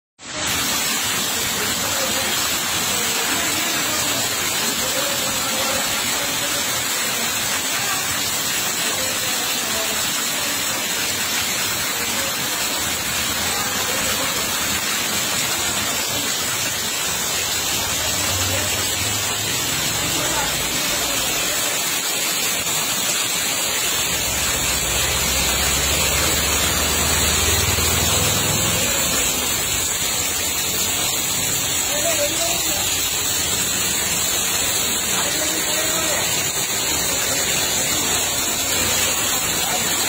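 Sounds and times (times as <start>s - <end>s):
heavy rain on wet concrete: 0.2s - 40.0s
running water: 0.2s - 40.0s.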